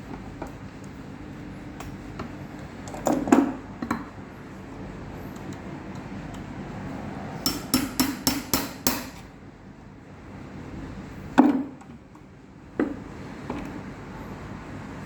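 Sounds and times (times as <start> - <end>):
hammer tapping on metal: 7.4 - 9.3.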